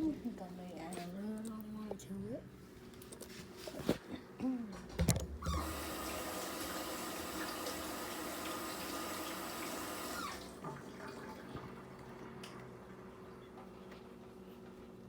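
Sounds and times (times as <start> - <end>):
tap running into a sink: 5.0 - 10.8.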